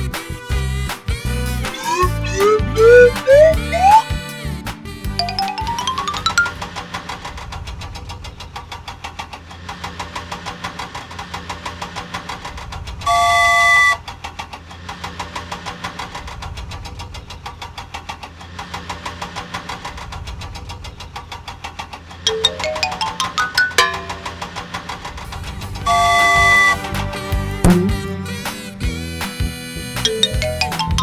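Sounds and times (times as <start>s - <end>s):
cartoon engine chugging: 1.7s - 4.1s, 27.7s - 28.1s
rising chime-like tones: 1.8s - 4.0s, 5.2s - 6.6s, 22.3s - 24.6s
horn honk: 13.1s - 14.0s, 25.8s - 28.2s.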